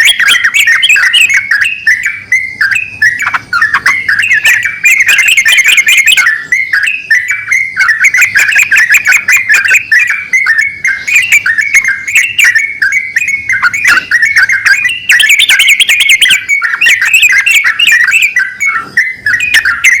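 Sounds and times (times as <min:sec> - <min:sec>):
birds chirping rapidly: 0:00.0 - 0:20.0.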